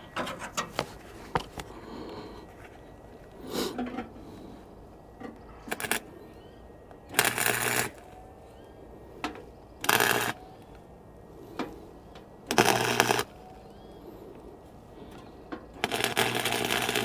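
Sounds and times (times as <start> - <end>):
welder arc crackling: 5.7 - 6.1, 7.1 - 8.2, 9.8 - 10.4, 12.5 - 13.4, 15.8 - 17.0
welder buzz: 5.7 - 6.4, 7.0 - 8.6, 9.8 - 10.7, 12.5 - 13.5, 15.8 - 17.0.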